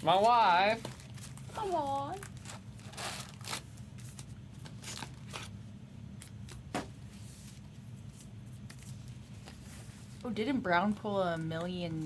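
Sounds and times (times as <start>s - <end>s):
steady low hum: 0.0s - 12.0s
foil wrappers tearing and crinkling: 0.7s - 5.5s.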